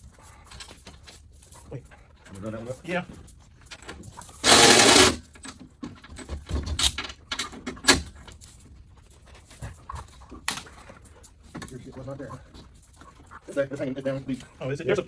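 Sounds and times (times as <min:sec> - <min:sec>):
power ratchet running: 0:04.4 - 0:05.3.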